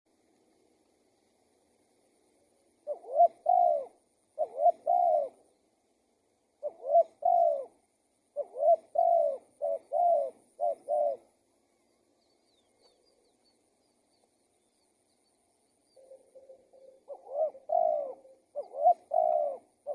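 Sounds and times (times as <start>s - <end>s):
dove cooing: 2.8s - 5.6s, 6.6s - 11.4s, 15.9s - 19.9s
faint small bird chirps: 6.6s - 19.9s.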